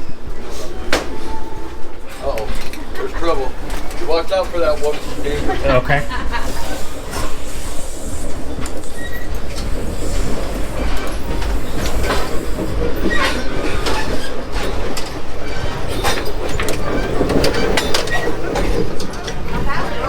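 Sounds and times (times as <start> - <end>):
train cars rumbling on track: 0.0 - 20.0
wheel squeals: 0.0 - 20.0
wheels clicking over rail joints: 0.0 - 20.0.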